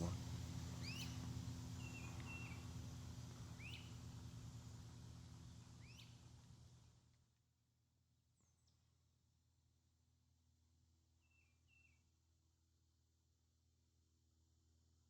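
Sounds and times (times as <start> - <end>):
low background hum: 0.0 - 14.5
small bird chirping: 0.8 - 2.8, 3.5 - 4.2, 5.4 - 6.3.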